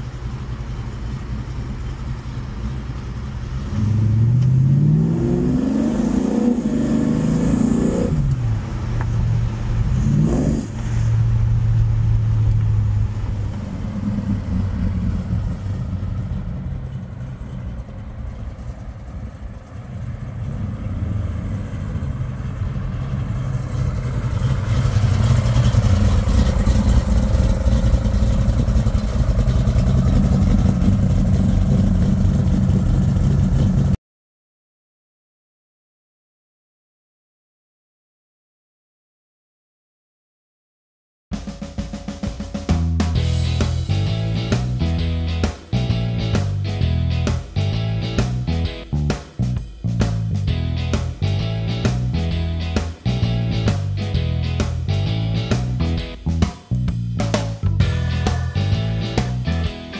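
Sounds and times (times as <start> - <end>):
car engine accelerating and revving: 3.4 - 17.2, 19.8 - 34.0.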